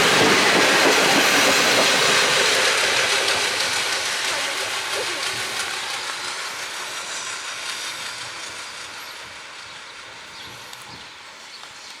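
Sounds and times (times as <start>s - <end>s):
steam train rolling past: 0.0s - 12.0s.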